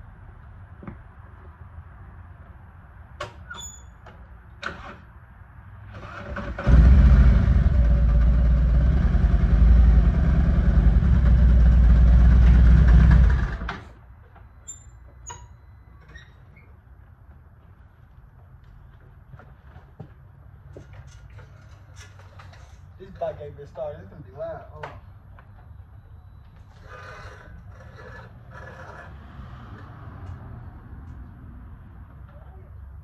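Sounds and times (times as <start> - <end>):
motorcycle engine running: 6.7 - 13.8.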